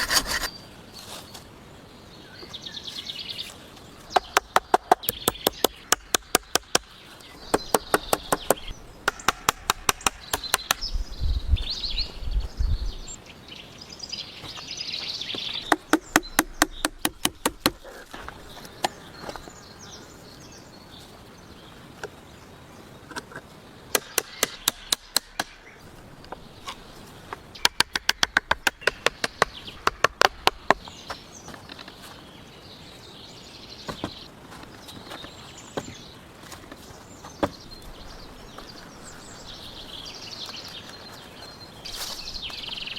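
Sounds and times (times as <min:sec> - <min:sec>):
blade chopping wood: 0:15.6 - 0:18.0, 0:23.9 - 0:25.7, 0:27.6 - 0:31.2.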